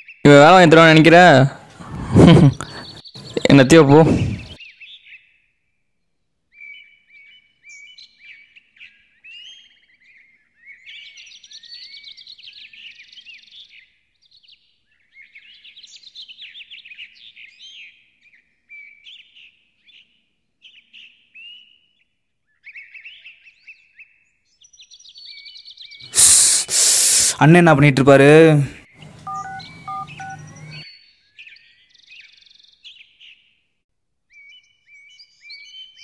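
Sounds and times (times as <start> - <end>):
birds chirping and singing: 0.0 - 5.4, 6.6 - 21.9, 22.6 - 33.6, 34.3 - 36.0.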